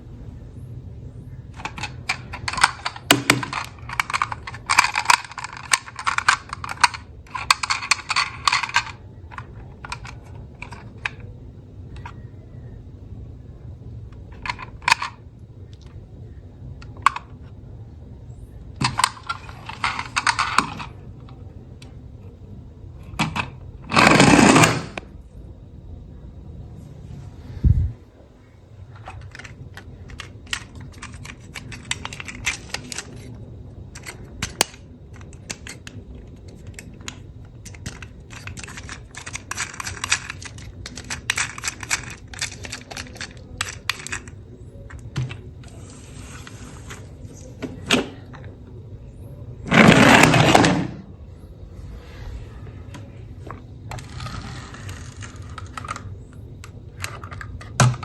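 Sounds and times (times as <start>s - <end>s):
plastic toys clattering: 1.3s - 12.3s, 14.1s - 16.0s, 16.8s - 17.6s, 18.3s - 25.1s, 28.8s - 48.7s, 49.6s - 51.1s, 52.0s - 58.0s
loud rasping burst: 23.9s - 25.0s.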